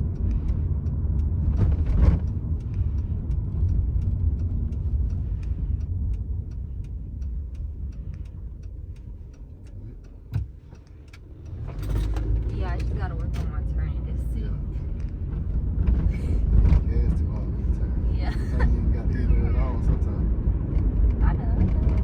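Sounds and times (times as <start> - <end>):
steady ticking clicks: 0.0 - 16.8
car interior rumble: 0.0 - 22.0.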